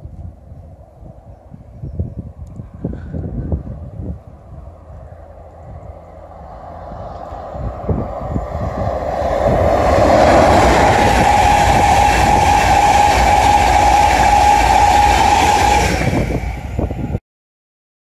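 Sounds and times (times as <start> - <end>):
train rushing past: 3.0 - 17.2
high whine: 4.0 - 17.2
rapid clicking of wheels on rail: 4.9 - 17.2.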